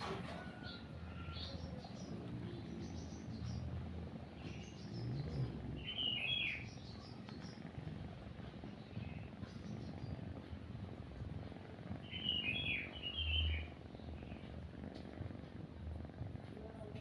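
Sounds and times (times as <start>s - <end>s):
cat purring: 0.0s - 17.0s
birds chirping: 0.3s - 17.0s.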